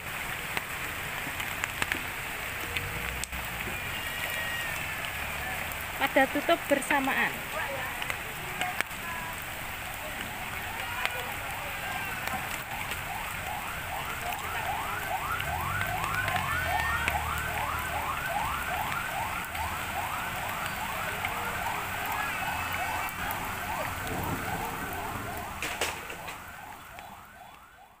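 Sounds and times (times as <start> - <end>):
electronic siren whooping: 12.3 - 28.0.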